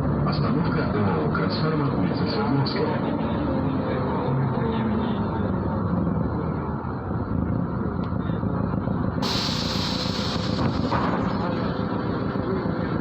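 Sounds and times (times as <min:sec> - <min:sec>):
bus diesel engine running: 0:05.0 - 0:13.0
compressed air hiss: 0:09.2 - 0:11.4.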